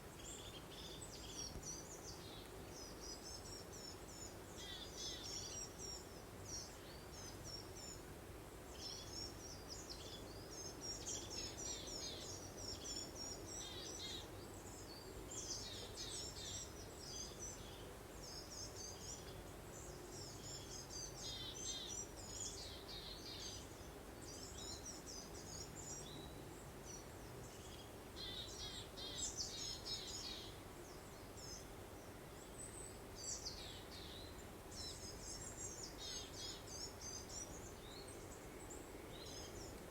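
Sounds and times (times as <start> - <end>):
soft breeze-like hiss: 0.0 - 39.9
birds chirping and twittering: 24.3 - 31.8, 32.4 - 39.9.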